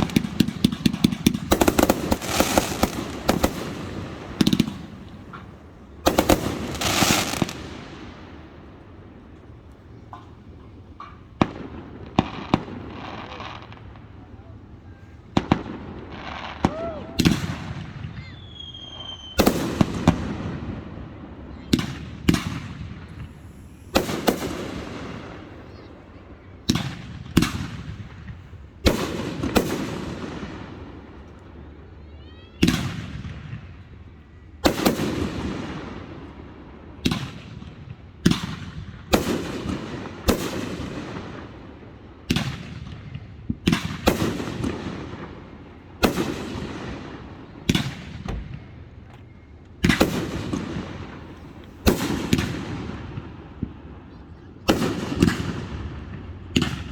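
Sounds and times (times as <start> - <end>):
firework booms with rumbling echo: 0.0 - 14.6, 15.3 - 31.2, 32.6 - 33.9, 34.6 - 49.0, 49.8 - 54.0, 54.6 - 56.9
high firework whistle: 16.4 - 20.2, 21.5 - 26.0.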